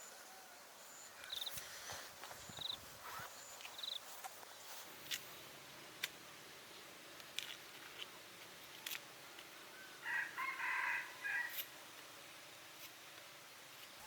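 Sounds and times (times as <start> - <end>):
rooster crowing: 9.8 - 11.6.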